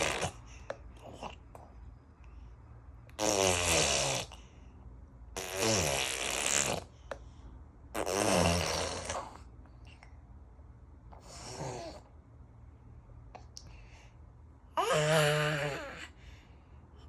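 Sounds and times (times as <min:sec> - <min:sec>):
baby making hoarse breathy sounds: 0:14.8 - 0:16.4.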